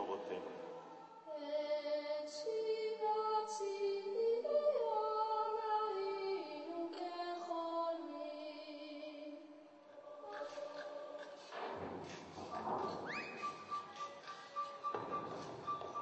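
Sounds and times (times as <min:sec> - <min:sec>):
layered female singing: 0:00.7 - 0:11.6.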